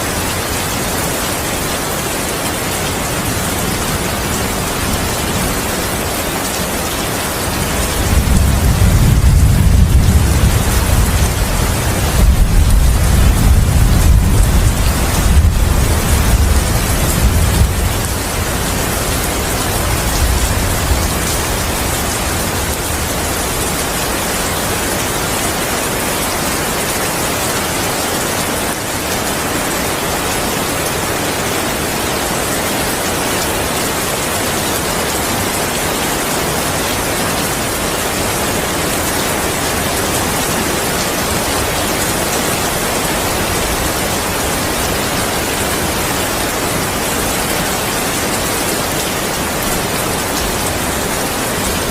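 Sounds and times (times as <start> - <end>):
heavy rain falling: 0.0 - 51.9
low thunder rumble: 7.7 - 23.7.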